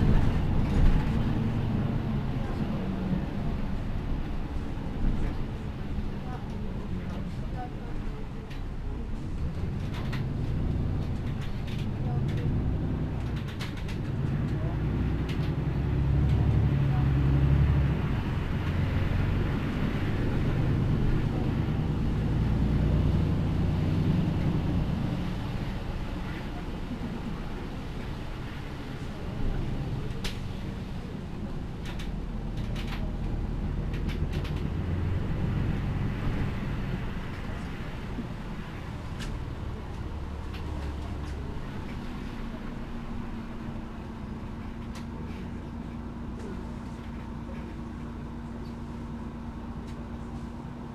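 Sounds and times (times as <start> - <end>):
bus engine low drone: 0.0 - 50.9
faint clicks and rattles: 9.4 - 16.6, 31.6 - 34.9.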